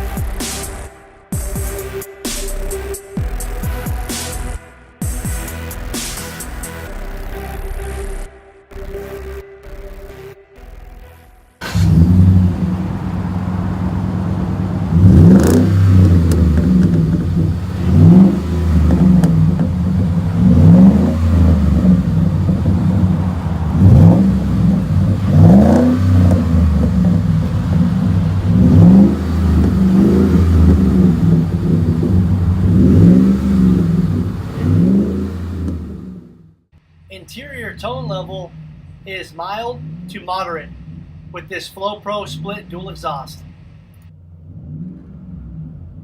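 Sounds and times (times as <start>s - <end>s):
truck engine revving from idle: 11.6s - 46.0s.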